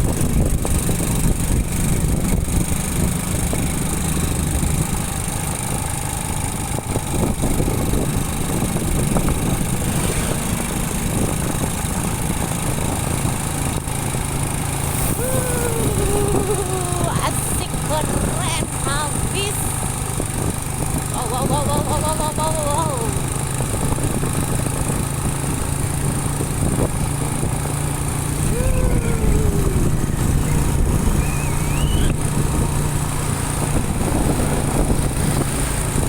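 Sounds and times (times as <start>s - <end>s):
motorcycle engine at low revs: 0.0s - 36.0s
road and traffic noise: 0.0s - 36.0s.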